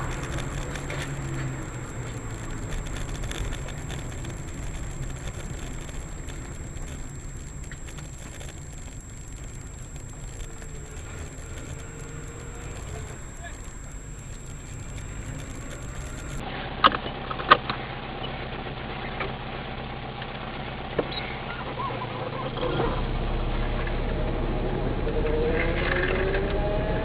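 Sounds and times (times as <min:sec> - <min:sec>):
sharp clicks: 0:00.0 - 0:17.0
car engine and road noise: 0:00.0 - 0:27.0.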